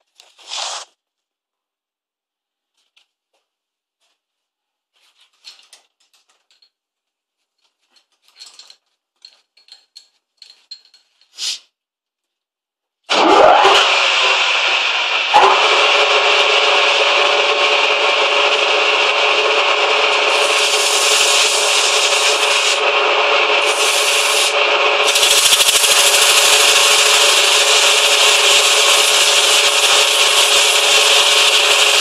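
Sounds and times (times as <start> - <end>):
lathe whine and running: 13.1 - 32.0.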